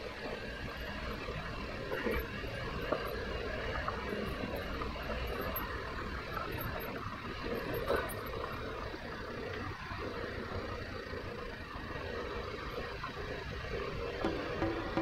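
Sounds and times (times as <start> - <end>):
motorcycle engine running: 12.2 - 15.0.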